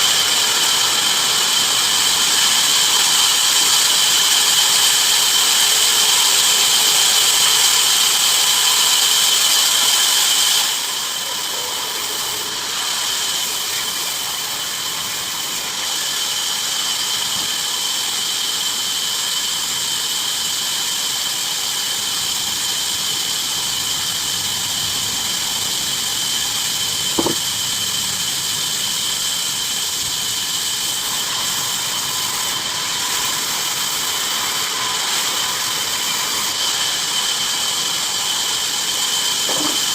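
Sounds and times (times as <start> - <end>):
bandsaw cutting wood: 26.4 - 27.6, 38.9 - 39.9.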